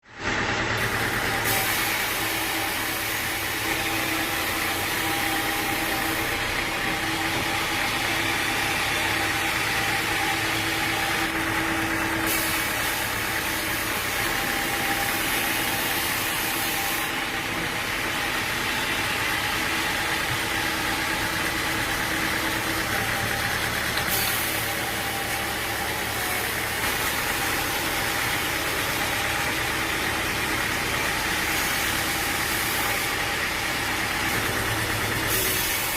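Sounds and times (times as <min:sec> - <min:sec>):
engine running: 0:00.0 - 0:35.9.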